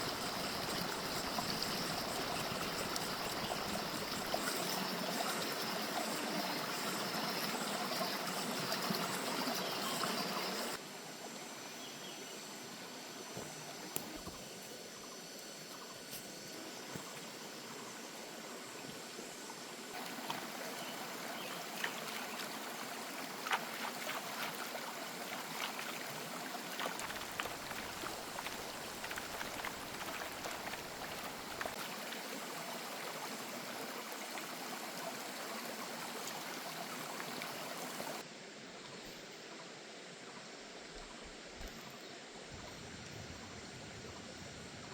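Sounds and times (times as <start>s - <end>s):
stream flowing: 0.0s - 10.8s, 16.5s - 38.6s
small clicks and splashes: 23.4s - 31.8s.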